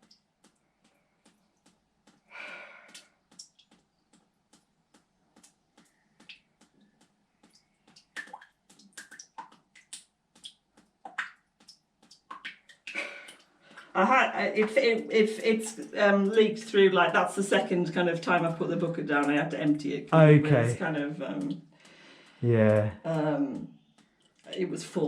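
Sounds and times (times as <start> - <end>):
water dripping into bucket: 0.0 - 19.7.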